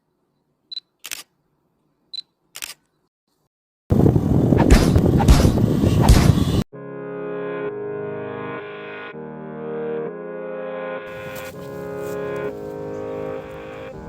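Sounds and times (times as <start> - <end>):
camera shutter clicks: 1.0 - 1.3, 2.6 - 2.8.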